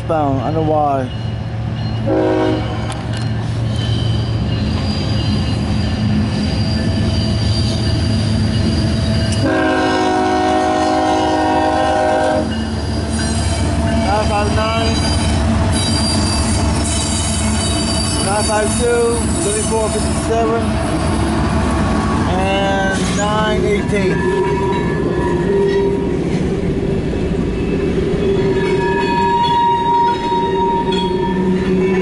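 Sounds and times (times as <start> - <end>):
diesel locomotive engines rumbling: 0.0 - 32.0
high wheel squeal: 1.0 - 9.7, 12.5 - 21.4, 22.0 - 26.2, 27.6 - 32.0
train horn blast: 2.0 - 2.9, 9.3 - 12.6.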